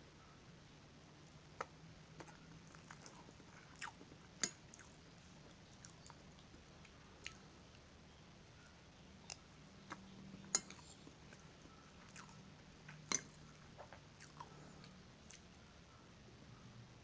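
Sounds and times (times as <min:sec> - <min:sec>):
chewing and mouth sounds: 0:01.6 - 0:07.8, 0:09.2 - 0:15.5.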